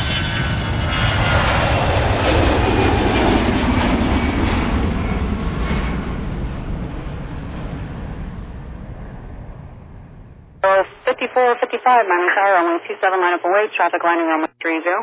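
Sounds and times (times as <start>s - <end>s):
airplane flying past: 0.0s - 10.6s.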